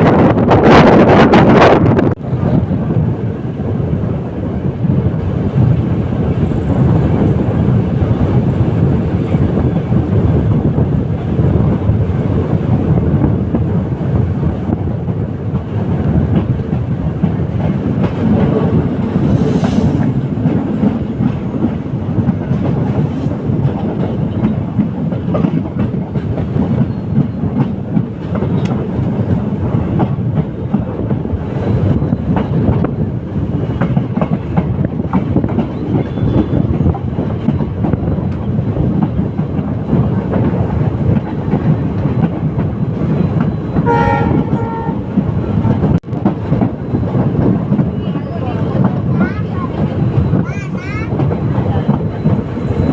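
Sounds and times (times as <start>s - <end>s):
clickety-clack over rail joints: 0.0s - 52.9s
train wheels rumbling on rails: 0.0s - 52.9s.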